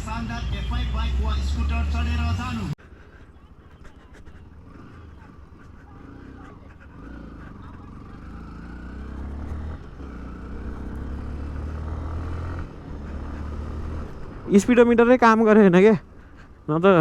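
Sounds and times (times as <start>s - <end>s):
motorcycle engine pulling away: 4.4s - 14.9s.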